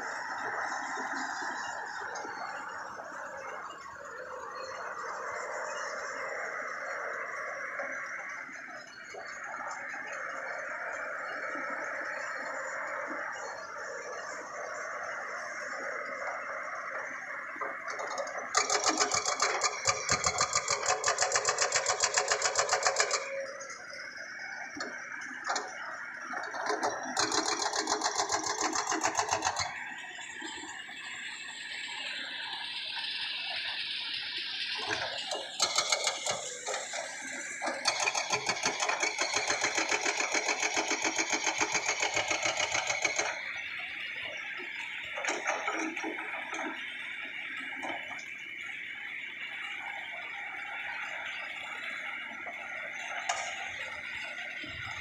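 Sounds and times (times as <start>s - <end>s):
excavator engine and hydraulics: 0.0s - 55.0s
rising hydraulic whine: 0.0s - 55.0s
hydraulic breaker hammering rock: 35.4s - 37.0s, 37.7s - 43.4s.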